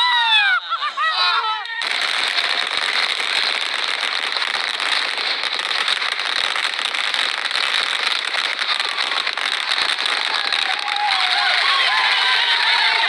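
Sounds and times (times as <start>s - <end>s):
firecrackers crackling and popping: 1.6s - 13.0s.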